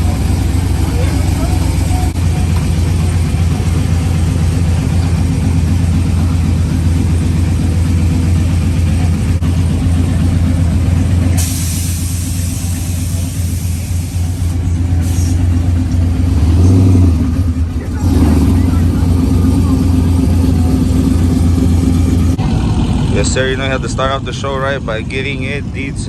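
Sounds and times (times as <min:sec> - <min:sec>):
vehicle engine humming: 0:00.0 - 0:26.0
hiss: 0:11.4 - 0:15.4.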